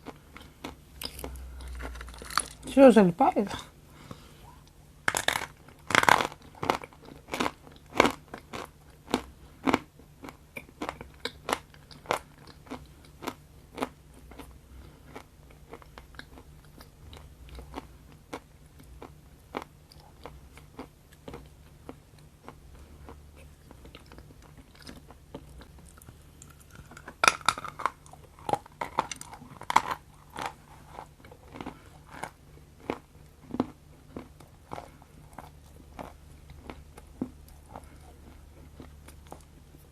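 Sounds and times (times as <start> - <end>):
chewing chocolate: 4.6 - 39.7
crunchy bites: 5.0 - 14.5, 23.7 - 38.0.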